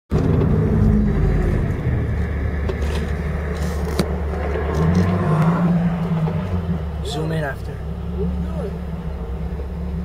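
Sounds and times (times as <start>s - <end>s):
car engine drone in cabin: 0.1s - 10.0s.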